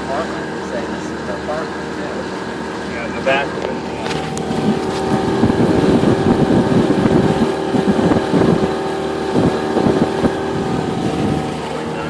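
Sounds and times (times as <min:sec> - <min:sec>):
outboard motor running: 0:00.0 - 0:12.0
wind buffeting microphone: 0:03.6 - 0:12.0.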